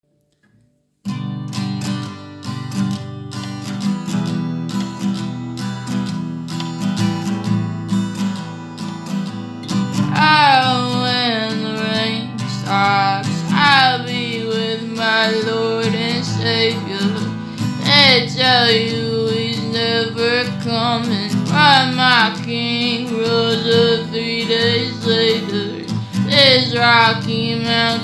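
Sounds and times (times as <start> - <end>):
acoustic guitar playing: 0.2 - 28.0
person singing wordless line: 10.0 - 28.0.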